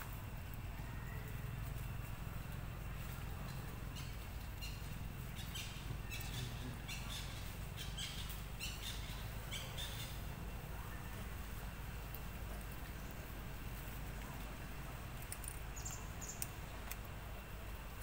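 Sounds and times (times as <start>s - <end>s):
steady low rumble: 0.0s - 18.0s
bird chirping: 0.7s - 11.3s, 15.3s - 17.0s.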